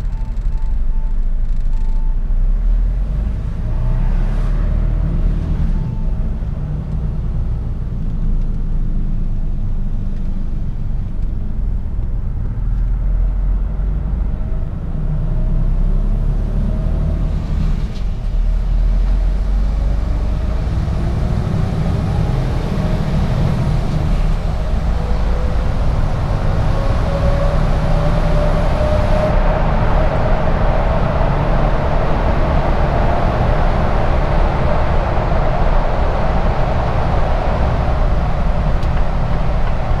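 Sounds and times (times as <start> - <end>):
truck engine and road rumble: 0.0 - 40.0
rising whine: 18.9 - 40.0.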